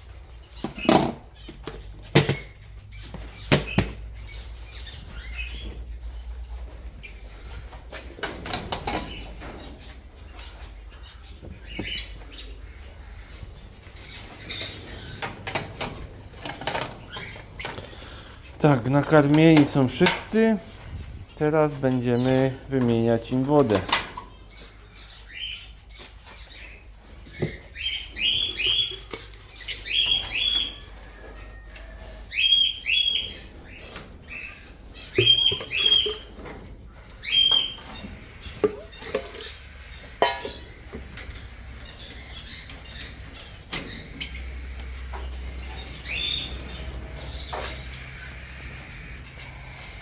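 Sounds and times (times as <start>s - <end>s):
parrots chirping: 0.0s - 7.7s, 8.6s - 19.0s, 24.1s - 50.0s
knocks and clatter: 0.6s - 4.2s, 7.8s - 10.0s.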